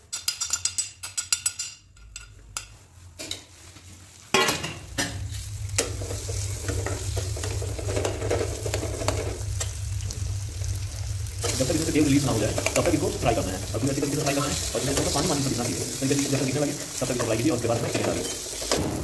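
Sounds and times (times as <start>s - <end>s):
spatula scraping and tapping pan: 0.1s - 3.6s
masala sizzling in oil: 2.7s - 19.0s.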